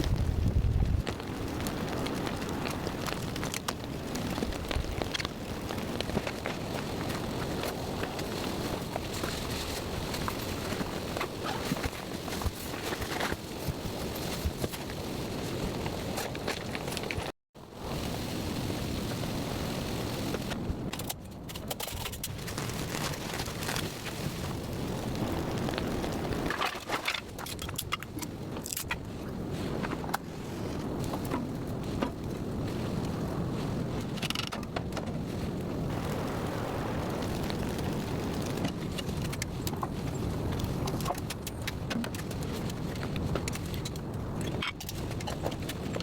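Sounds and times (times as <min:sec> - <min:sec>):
sharp ticks of raindrops: 0:00.0 - 0:08.8
rain drumming on car and tent: 0:00.0 - 0:17.0, 0:17.7 - 0:20.9, 0:30.9 - 0:44.2
heavy rain hissing: 0:35.8 - 0:39.6.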